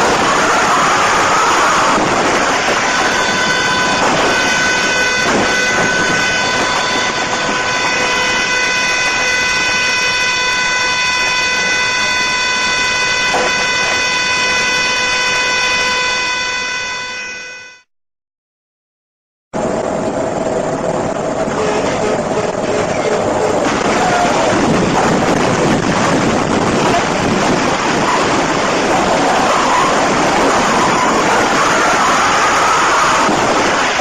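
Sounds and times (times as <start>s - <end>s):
road and vehicle rumble: 0.0s - 16.6s, 19.6s - 34.0s
vehicle horn blaring: 0.9s - 17.9s, 21.4s - 25.3s, 26.0s - 34.0s.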